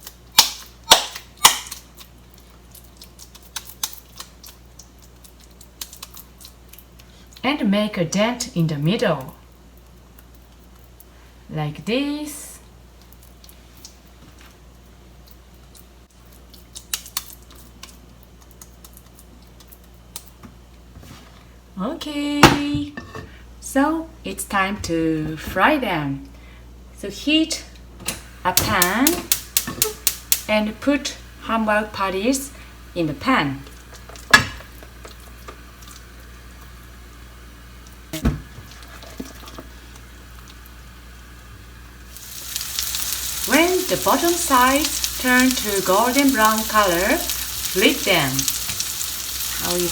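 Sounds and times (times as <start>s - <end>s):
steady low hum: 20.8s - 49.9s
patties sizzling in a pan: 39.7s - 49.9s.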